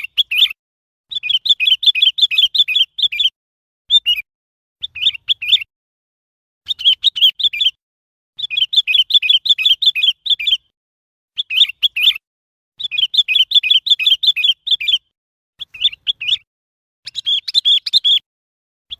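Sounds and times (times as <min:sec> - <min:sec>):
bird chirping song: 0:00.0 - 0:05.7, 0:06.6 - 0:07.8, 0:08.4 - 0:18.3.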